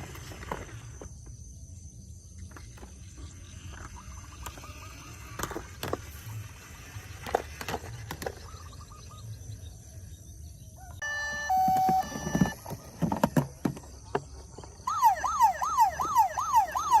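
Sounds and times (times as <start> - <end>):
toy electronic tones: 11.0 - 13.2, 14.8 - 17.0.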